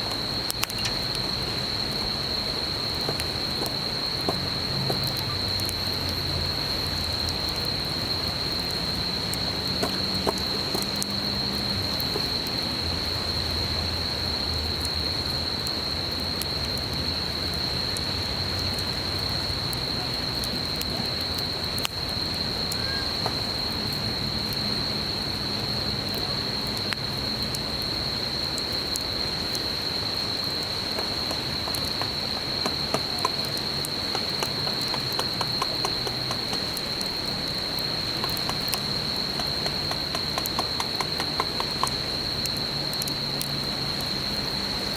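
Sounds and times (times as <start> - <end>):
stream flowing: 0.0 - 14.0, 28.2 - 44.9
campfire crackling and popping: 0.0 - 44.9
insect high-pitched buzz: 27.6 - 44.9.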